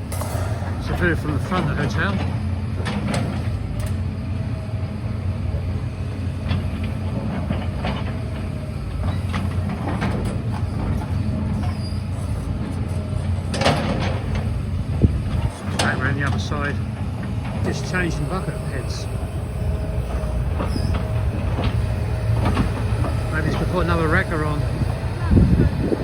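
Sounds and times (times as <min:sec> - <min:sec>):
knocks and clanks: 0:00.0 - 0:04.0, 0:13.5 - 0:25.8
diesel engine running: 0:00.0 - 0:26.0.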